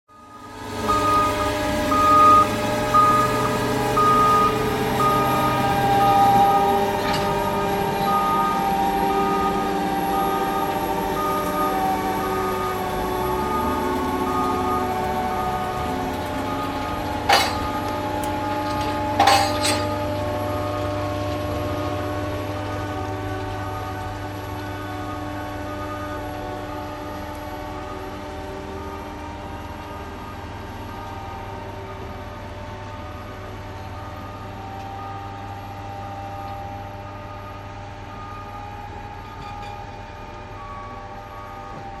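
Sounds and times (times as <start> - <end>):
diesel engine running: 0.1 - 42.0
sharp metal clank: 17.3 - 17.7, 19.2 - 19.9.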